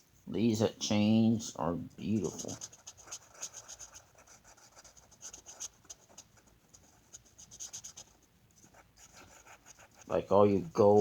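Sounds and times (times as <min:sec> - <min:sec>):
colouring tool scratching on paper: 0:02.2 - 0:10.2.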